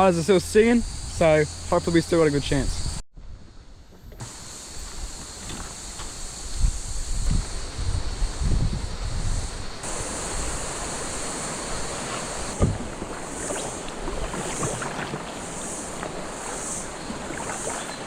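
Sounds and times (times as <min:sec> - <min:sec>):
cicadas singing: 0:00.0 - 0:18.0
water splashing and lapping: 0:09.8 - 0:18.0.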